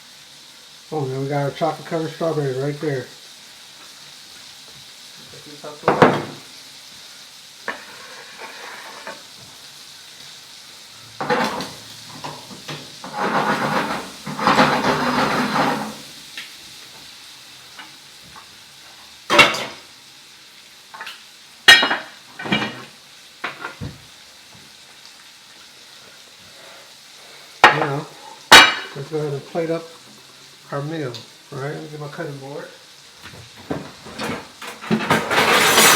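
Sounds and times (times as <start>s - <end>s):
frying pan sizzling: 0.0s - 35.9s
dishes and utensils clattering: 11.2s - 16.0s, 21.7s - 23.8s, 27.6s - 29.0s, 33.7s - 35.9s
scraping and stirring: 11.2s - 16.1s.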